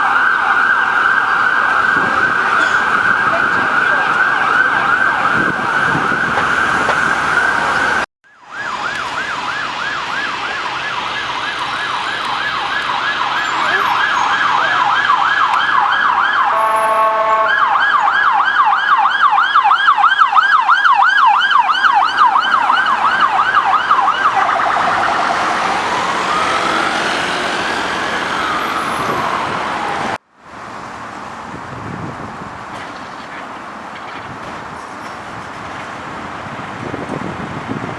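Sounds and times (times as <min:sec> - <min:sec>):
police siren yelp and wail: 0:00.0 - 0:30.2
steady siren tone: 0:00.0 - 0:30.2
short horn blast: 0:16.4 - 0:17.8.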